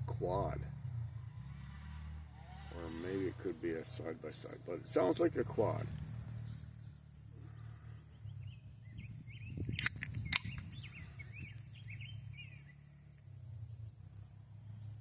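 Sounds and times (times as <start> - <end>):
distant engine droning: 0.0 - 15.0
songbird chirping: 5.4 - 15.0
sharp clicks: 9.6 - 11.0.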